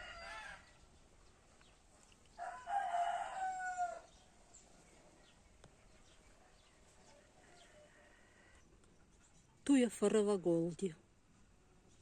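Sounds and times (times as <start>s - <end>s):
rooster crowing: 0.0s - 0.7s, 2.4s - 4.1s.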